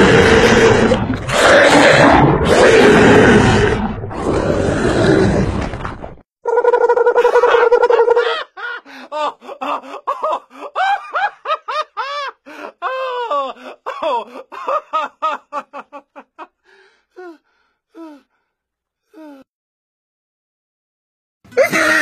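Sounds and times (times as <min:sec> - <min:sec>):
rapid high-pitched laughter: 0:06.5 - 0:12.9.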